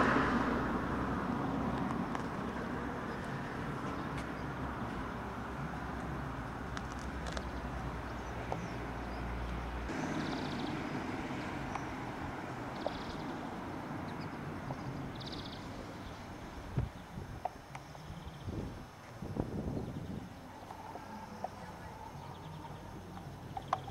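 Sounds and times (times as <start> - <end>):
small birds chirping: 6.7 - 23.9.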